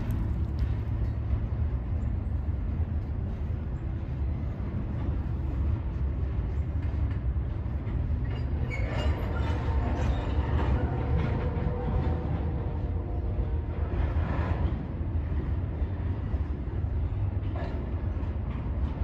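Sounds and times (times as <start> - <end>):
freight train rumbling on bridge: 0.0 - 19.0
metallic wheel screeching: 8.2 - 12.0.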